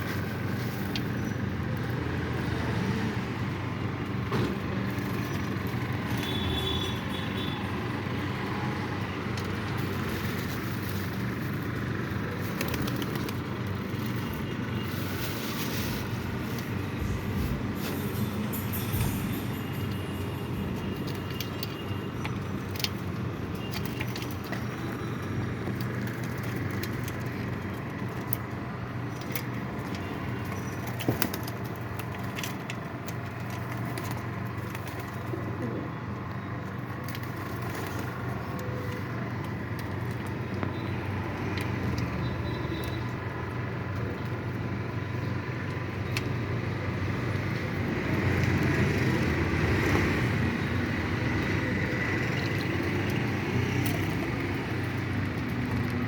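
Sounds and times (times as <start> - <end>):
wings flapping: 12.4 - 13.5
pigeons cooing: 35.0 - 36.2.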